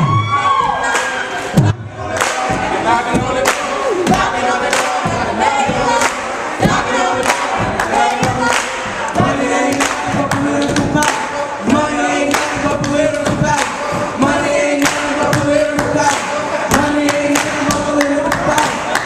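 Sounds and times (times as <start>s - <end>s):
young voices singing together: 0.0s - 19.0s
percussive claps or stomps: 1.6s - 19.0s.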